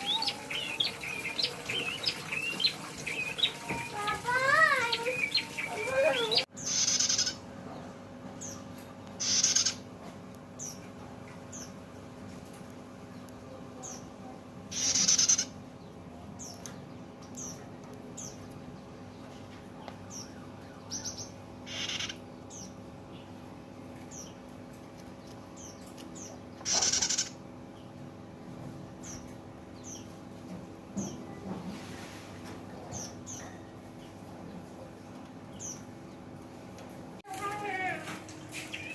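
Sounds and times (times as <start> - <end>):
bird high chirps: 0.0 - 7.4, 9.2 - 9.8, 20.1 - 22.8, 26.6 - 27.4, 38.5 - 38.9.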